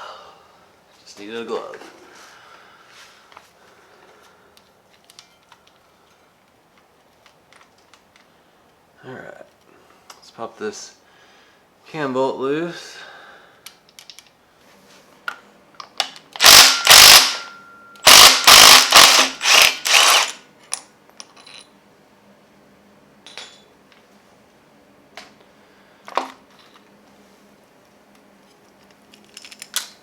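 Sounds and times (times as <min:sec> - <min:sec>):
impact wrench hammering: 0:16.4 - 0:20.4
sharp metallic clink: 0:16.4 - 0:20.4.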